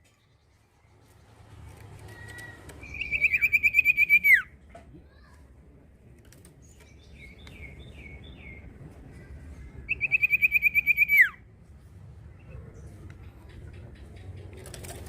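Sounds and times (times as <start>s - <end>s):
bird singing whistles and trill: 2.1s - 4.5s, 9.9s - 11.4s.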